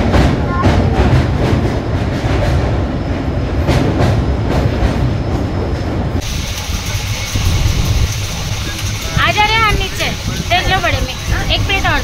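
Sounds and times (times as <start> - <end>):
train wheels rumbling on rails: 0.0 - 12.0
wheel clacks: 3.6 - 12.0.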